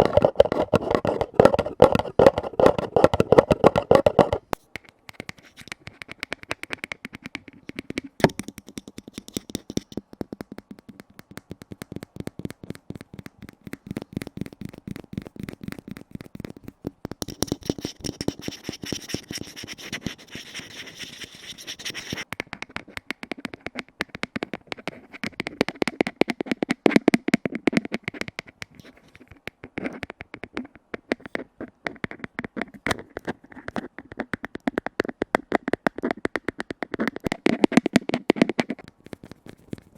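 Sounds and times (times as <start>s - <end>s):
fingertips tapping on container lids: 0.0s - 39.9s.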